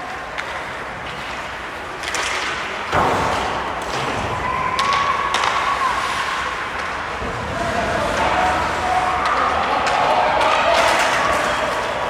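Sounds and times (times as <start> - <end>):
hockey sticks and puck clacking: 0.0 - 12.0
arena crowd din: 2.7 - 12.0.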